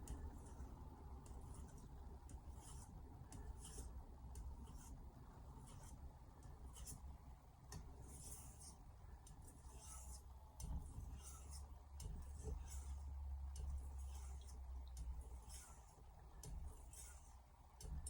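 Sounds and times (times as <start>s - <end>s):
low steady hum: 0.0s - 18.0s
knife scraping on whetstone: 9.6s - 10.2s, 11.0s - 13.1s, 13.9s - 14.6s, 15.4s - 15.9s, 16.8s - 17.3s.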